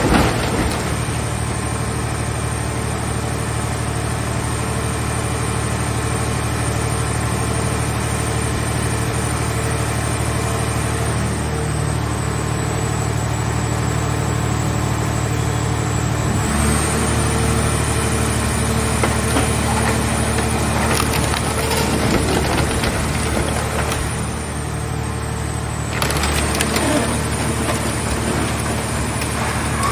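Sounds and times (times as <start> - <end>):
metal being crushed: 0.0 - 1.8, 18.8 - 24.8, 25.8 - 29.9
hydraulic power unit running: 17.2 - 29.9.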